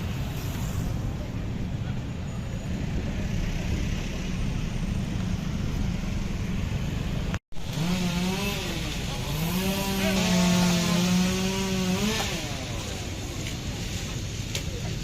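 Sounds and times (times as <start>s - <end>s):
low rumbling noise: 0.0s - 11.7s
chainsaw revving: 7.6s - 13.2s.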